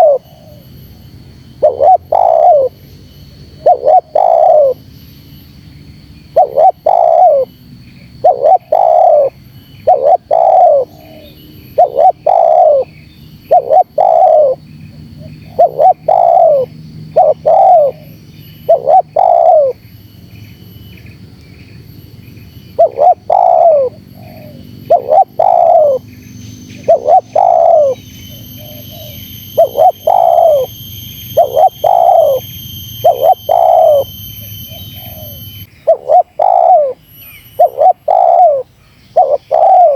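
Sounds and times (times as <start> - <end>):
dove cooing: 0.0 - 0.7, 1.6 - 2.8, 3.6 - 4.8, 6.3 - 7.5, 8.2 - 14.6, 15.2 - 19.8, 22.7 - 26.1, 26.8 - 30.8, 31.4 - 34.1, 34.7 - 37.0, 37.6 - 39.9
faint high-pitched whine: 0.0 - 39.9.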